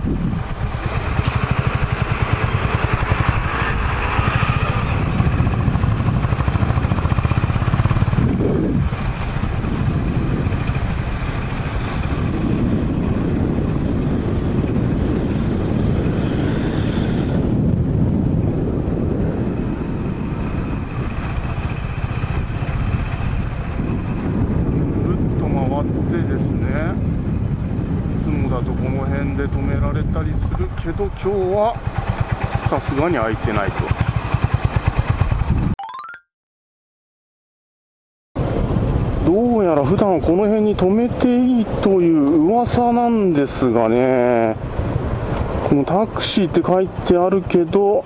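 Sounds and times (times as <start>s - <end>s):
motorcycle engine running: 0.0s - 16.7s, 31.2s - 35.7s.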